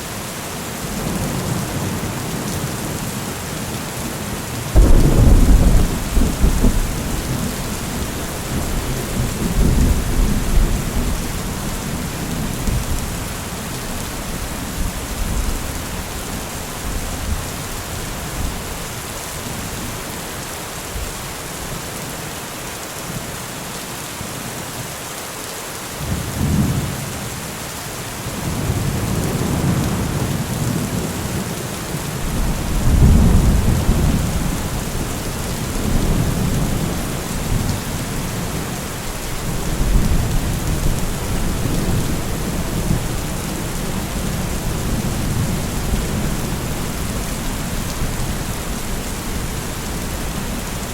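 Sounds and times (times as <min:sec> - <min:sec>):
heavy rain hissing: 0:00.0 - 0:50.9
low rolling thunder: 0:04.7 - 0:13.4, 0:32.2 - 0:50.9.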